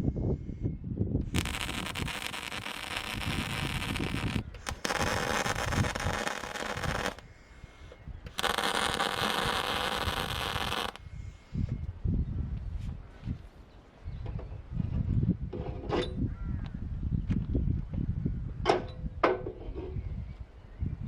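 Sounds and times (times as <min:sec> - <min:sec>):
welding arc crackling: 0:01.3 - 0:07.2, 0:08.3 - 0:11.0.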